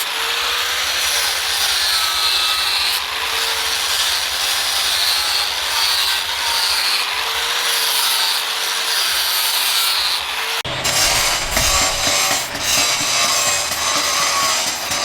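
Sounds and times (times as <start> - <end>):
hand tool rubbing a knife: 10.7 - 15.0.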